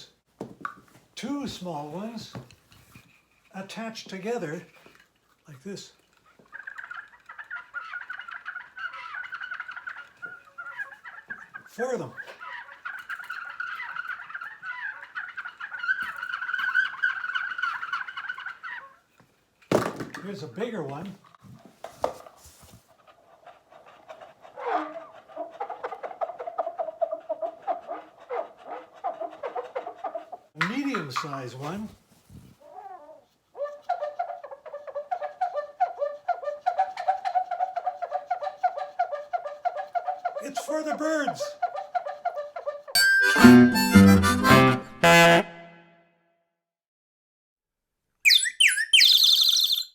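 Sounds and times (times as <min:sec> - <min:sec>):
whirled bottle chirpers chirping: 0:48.3 - 0:49.9.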